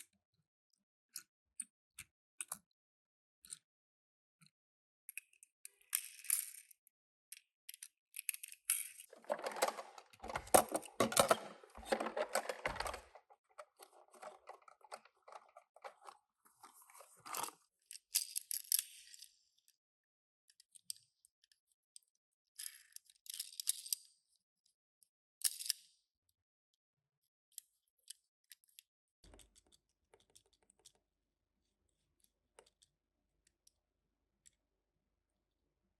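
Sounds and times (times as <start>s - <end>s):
small clicks and rustles: 5.1s - 19.3s, 27.5s - 31.1s
cardboard and plastic crackling: 9.1s - 17.3s.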